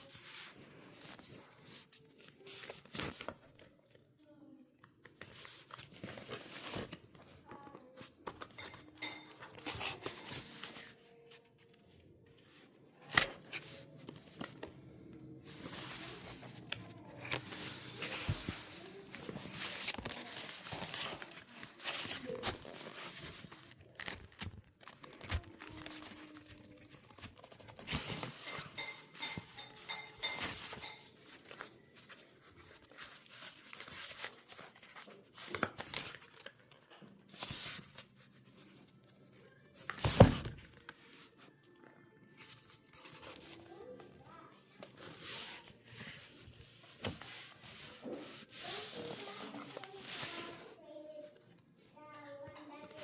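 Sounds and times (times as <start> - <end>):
tearing or crinkling: 15.7 - 28.4.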